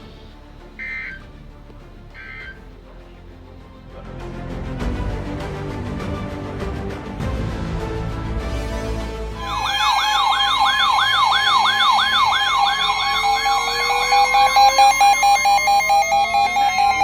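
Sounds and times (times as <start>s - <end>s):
music: 0.0s - 17.0s
yelping siren alert tone: 0.8s - 1.2s, 9.4s - 17.0s
fast pulsing beeps: 9.4s - 17.0s.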